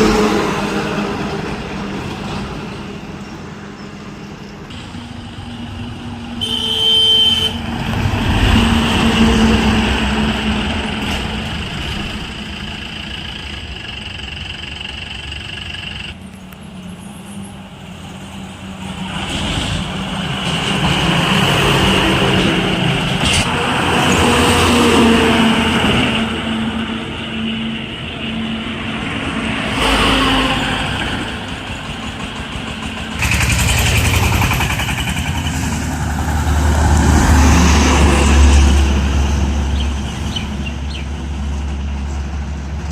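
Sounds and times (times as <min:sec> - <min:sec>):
heavy trucks driving past: 0:00.0 - 0:42.9
truck horn: 0:06.2 - 0:10.2.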